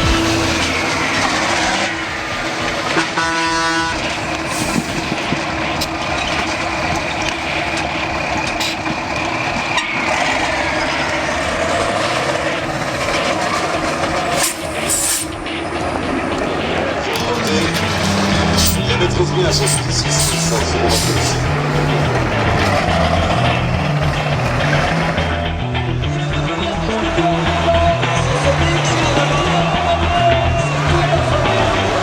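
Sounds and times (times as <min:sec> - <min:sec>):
truck engine revving: 0:00.0 - 0:32.0
horn: 0:02.9 - 0:04.8.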